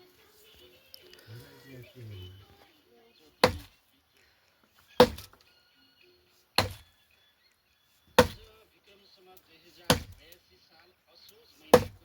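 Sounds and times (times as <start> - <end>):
heavy chopping strikes: 3.4 - 3.7, 5.0 - 5.4, 6.6 - 6.8, 8.2 - 8.5, 9.9 - 10.3, 11.7 - 12.0.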